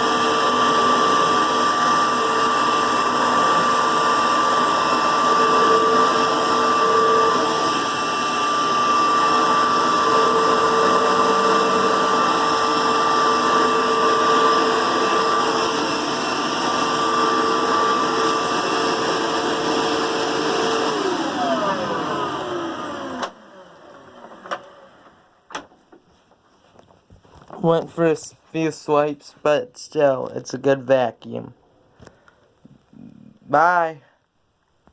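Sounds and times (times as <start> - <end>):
vacuum cleaner motor whining: 0.0 - 25.5.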